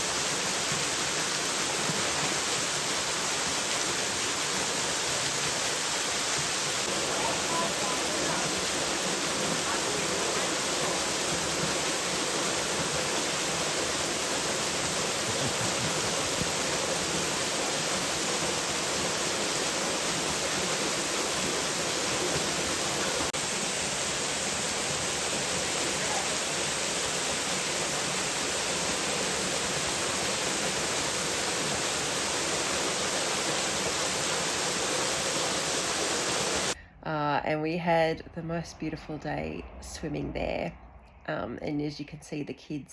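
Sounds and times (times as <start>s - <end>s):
waterfall rushing: 0.0s - 36.8s.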